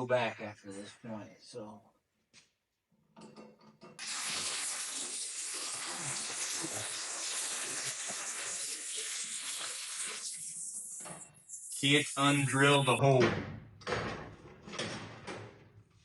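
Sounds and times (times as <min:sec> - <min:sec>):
hole saw cutting sheet metal: 0:04.0 - 0:13.0.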